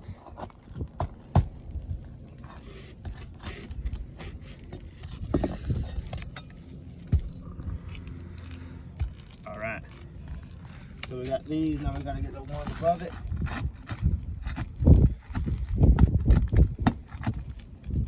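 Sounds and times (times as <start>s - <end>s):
scraping: 0.0s - 18.0s
nails being pried out: 2.5s - 6.6s, 13.4s - 18.0s.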